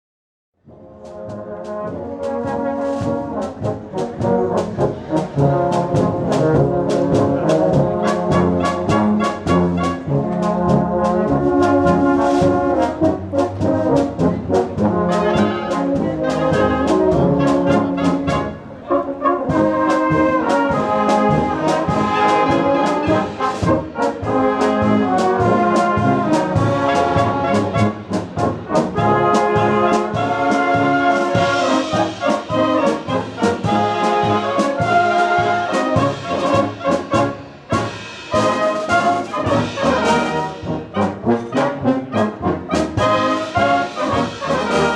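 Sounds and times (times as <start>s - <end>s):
brass band playing: 0.6s - 44.9s.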